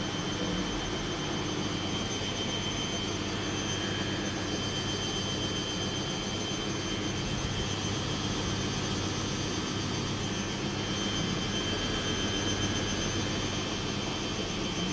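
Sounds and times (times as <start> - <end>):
faint high whine: 0.0 - 14.9
machine humming: 0.0 - 14.9.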